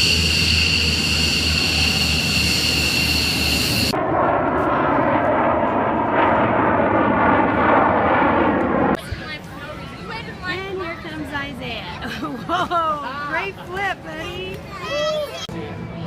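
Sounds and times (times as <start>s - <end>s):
high-pitched turbine whine: 0.0s - 9.0s
jet roar: 0.0s - 9.4s.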